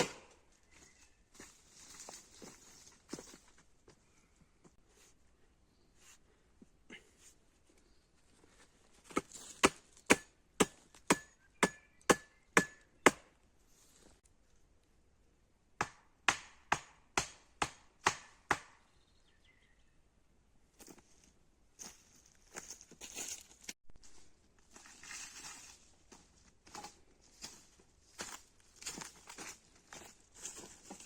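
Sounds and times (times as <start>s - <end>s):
axe chopping wood: 0.0s - 0.4s, 9.1s - 13.3s, 15.8s - 18.8s.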